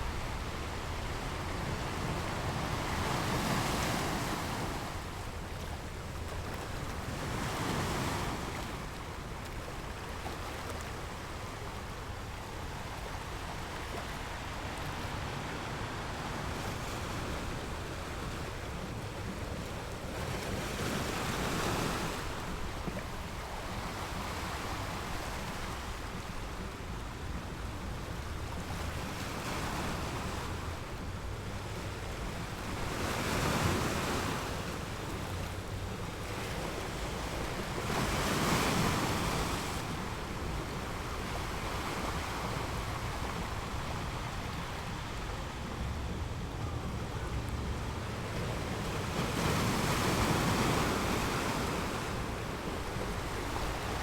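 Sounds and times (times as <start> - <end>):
waves breaking on beach: 28.4 - 54.0
constant low rumble: 39.8 - 49.8.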